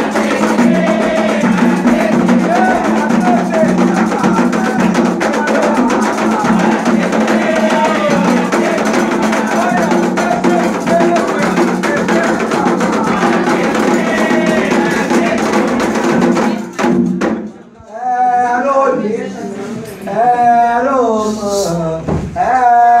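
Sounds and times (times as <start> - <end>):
voices singing: 0.0 - 16.8, 17.5 - 23.0
hand drums playing fast rhythm: 0.0 - 17.7.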